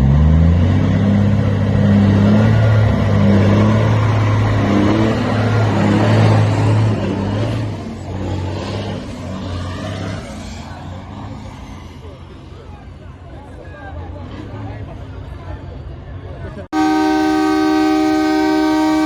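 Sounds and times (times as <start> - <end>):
heavy truck engine running: 16.7 - 19.0.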